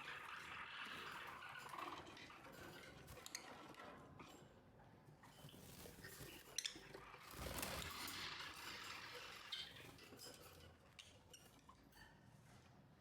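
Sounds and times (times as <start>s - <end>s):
birds rustling: 5.5s - 6.6s, 7.3s - 8.3s.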